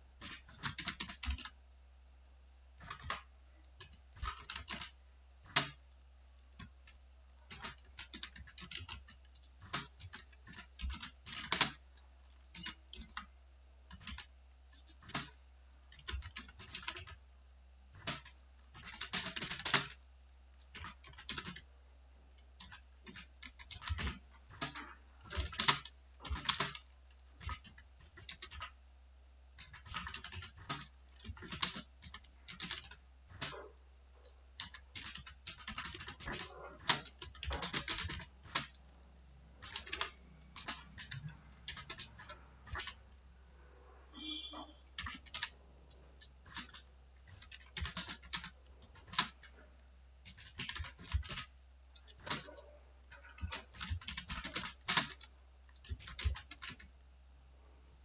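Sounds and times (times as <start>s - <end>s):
typing on keyboard: 0.2s - 1.6s, 2.8s - 17.2s, 17.9s - 20.0s, 20.6s - 21.7s, 22.4s - 28.8s, 29.6s - 43.2s, 44.1s - 56.9s.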